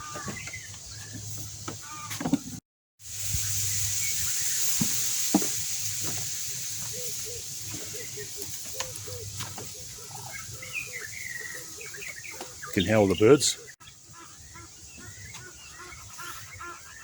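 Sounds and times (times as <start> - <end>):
low bird calls: 0.0 - 2.4, 6.0 - 17.0
steady high hiss: 3.0 - 12.1
high bird chirps: 3.3 - 5.1, 6.6 - 17.0.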